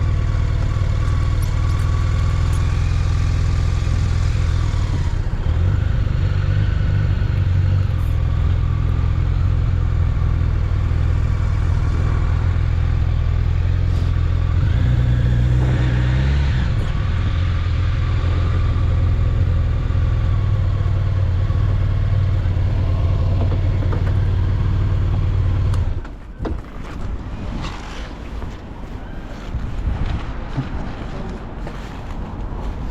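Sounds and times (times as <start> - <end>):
motorcycle engine running: 0.0 - 26.2.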